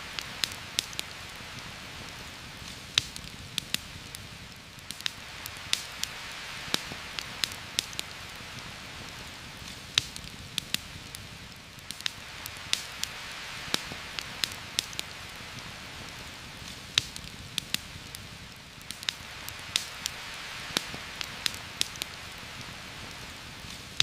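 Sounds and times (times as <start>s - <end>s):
heavy rain on foliage: 0.0s - 24.0s
sharp ticks and pops: 0.1s - 24.0s.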